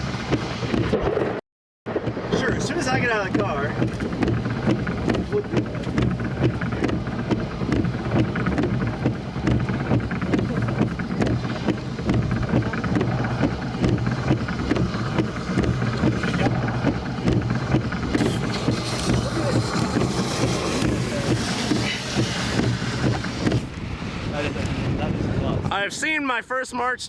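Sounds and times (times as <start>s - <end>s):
wind buffeting microphone: 0.0s - 26.2s.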